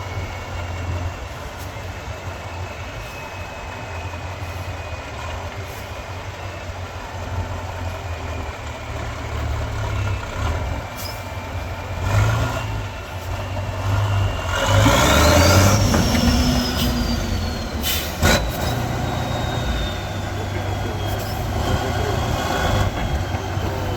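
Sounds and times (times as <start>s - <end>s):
truck engine labouring: 0.0s - 23.9s
rising whine: 13.5s - 23.9s.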